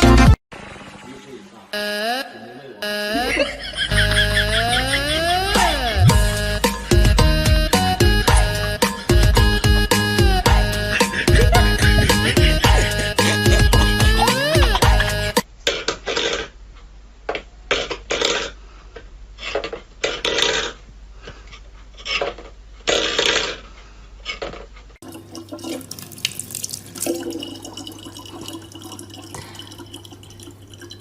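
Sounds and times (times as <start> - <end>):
water splashing: 25.0 - 31.0.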